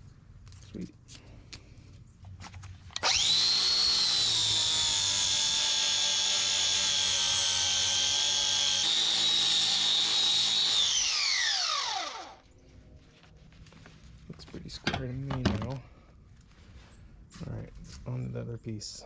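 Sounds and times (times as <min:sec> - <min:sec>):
power grinder whining: 0:03.0 - 0:12.4.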